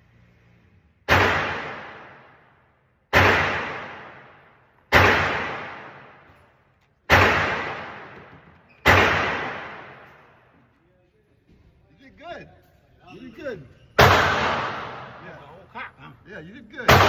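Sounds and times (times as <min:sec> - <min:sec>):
gunshots with echo: 0:01.1 - 0:06.4, 0:07.1 - 0:10.5, 0:14.0 - 0:15.5, 0:16.8 - 0:17.0.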